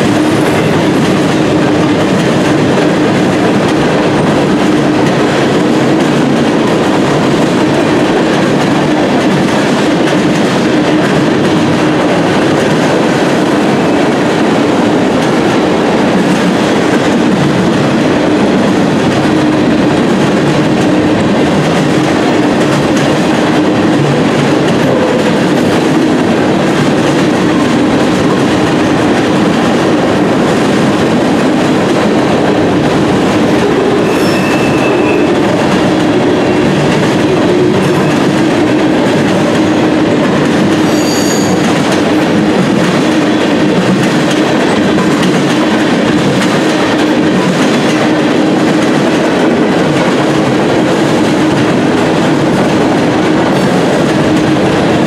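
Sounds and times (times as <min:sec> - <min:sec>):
train wheels rumbling clickety-clack: 0:00.0 - 0:55.0
high wheel squeals: 0:34.0 - 0:35.4, 0:40.8 - 0:41.7.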